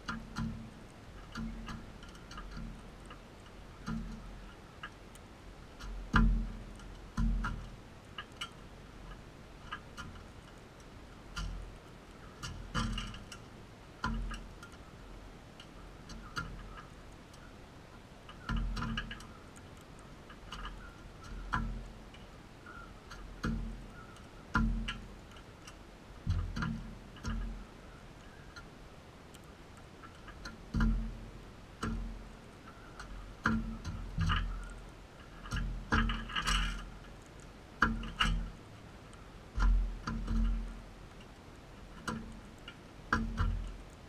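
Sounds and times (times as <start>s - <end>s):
knocks and clicks with thuds: 0.0s - 3.2s, 3.8s - 5.0s, 5.8s - 8.5s, 12.4s - 13.4s, 18.3s - 19.4s, 20.3s - 22.1s, 23.1s - 23.9s, 24.5s - 25.1s, 26.2s - 27.7s, 30.0s - 31.2s, 31.8s - 32.4s, 33.0s - 36.9s, 39.5s - 40.8s, 41.9s - 43.8s.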